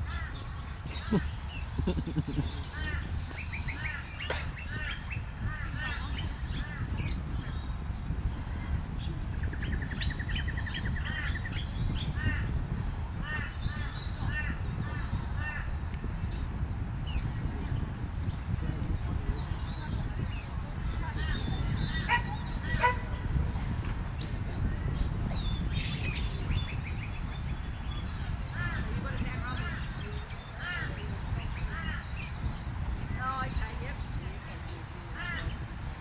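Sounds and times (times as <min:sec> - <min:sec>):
birds with harsh calls: 0:00.0 - 0:36.0
steady low rumble: 0:00.0 - 0:36.0.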